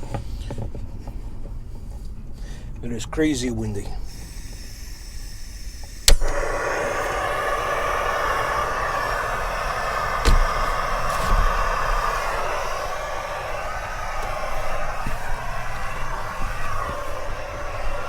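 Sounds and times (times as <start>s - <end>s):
gas stove burner roaring: 4.1s - 18.0s.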